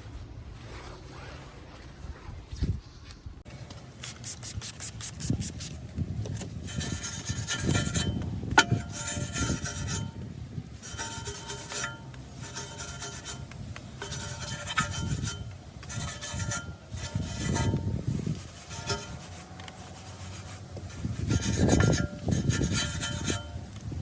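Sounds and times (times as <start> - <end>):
cloth wiping car body: 0.0 - 2.8, 10.8 - 23.4.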